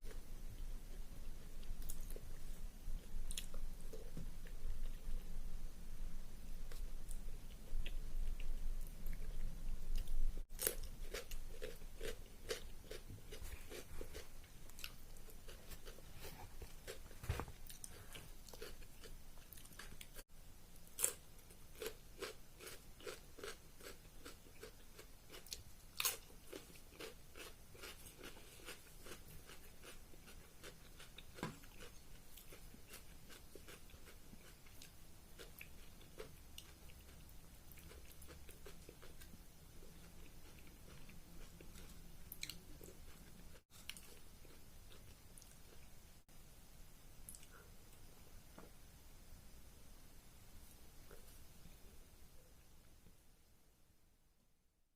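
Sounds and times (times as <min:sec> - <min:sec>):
person chewing food: 0:06.7 - 0:20.2, 0:20.8 - 0:46.0.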